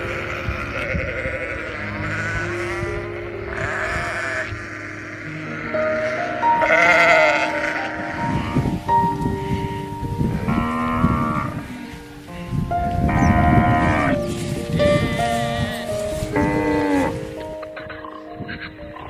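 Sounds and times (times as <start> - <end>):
sheep bleating: 0.0 - 8.7
background music: 0.0 - 19.0.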